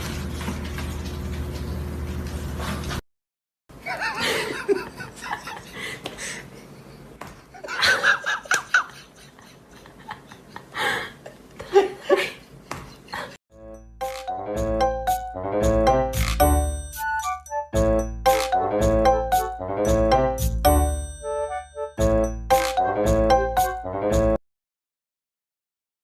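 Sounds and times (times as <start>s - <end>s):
people laughing: 3.8s - 6.4s, 7.5s - 13.4s.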